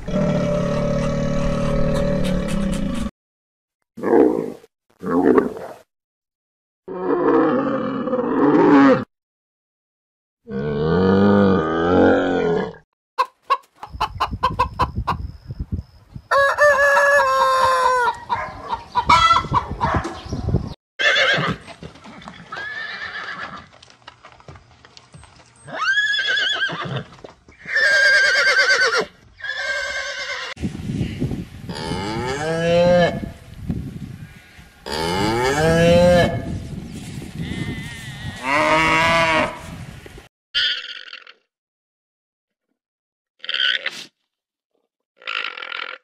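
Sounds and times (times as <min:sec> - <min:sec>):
low animal call: 0:00.0 - 0:03.1
low rising animal call: 0:00.0 - 0:03.1.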